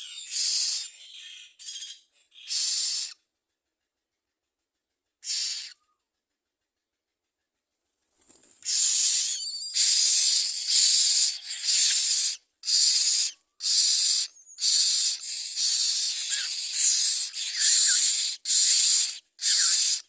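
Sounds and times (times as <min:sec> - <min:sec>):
nestlings hissing calls: 0:00.0 - 0:03.2, 0:05.2 - 0:05.8, 0:08.6 - 0:20.0.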